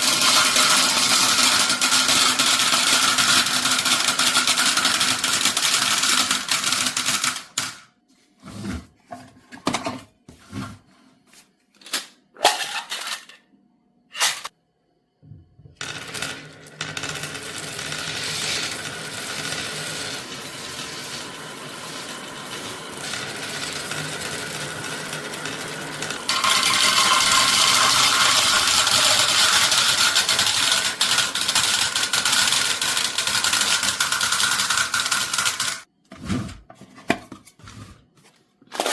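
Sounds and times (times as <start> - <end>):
marbles clicking and knocking: 0.0 - 7.8, 15.8 - 35.9
marbles rolling rattle: 0.0 - 7.8, 15.8 - 35.9.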